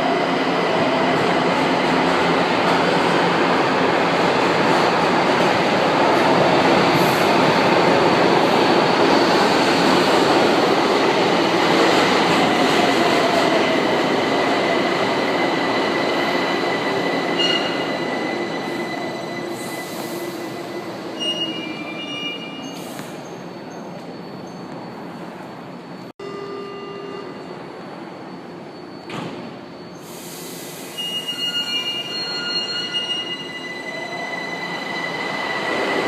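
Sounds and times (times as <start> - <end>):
metro train passing: 0.0 - 26.1, 26.7 - 36.0
high wheel squeal: 15.3 - 25.2, 28.2 - 36.0.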